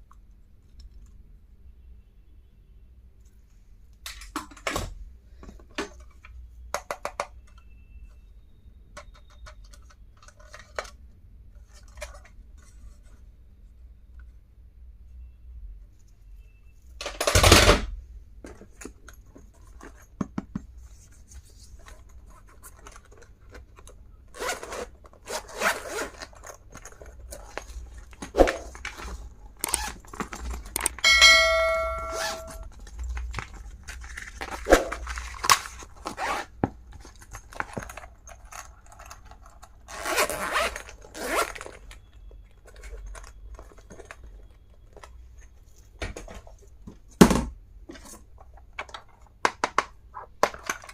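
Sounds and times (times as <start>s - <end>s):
packaging scrapes and rustles: 21.1s - 31.0s, 32.6s - 45.9s
short ringing metallic tone: 31.0s - 32.6s.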